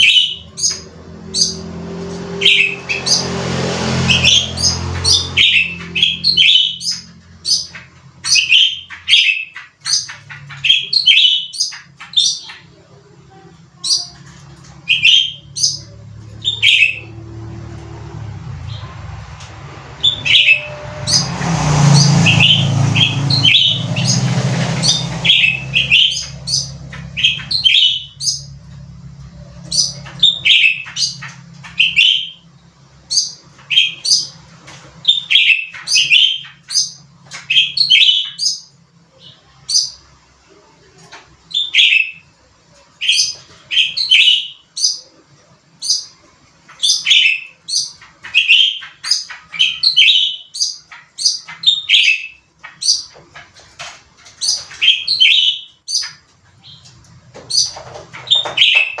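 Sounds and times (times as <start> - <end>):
bird chirping: 0.0 - 59.0
loud rushing noise: 16.0 - 27.5.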